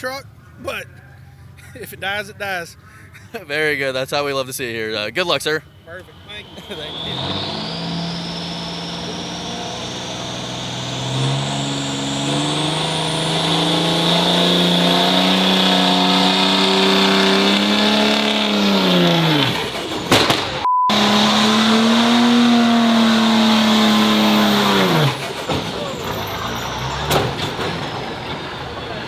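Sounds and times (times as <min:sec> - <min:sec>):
diesel truck engine revving high: 0:05.8 - 0:29.0.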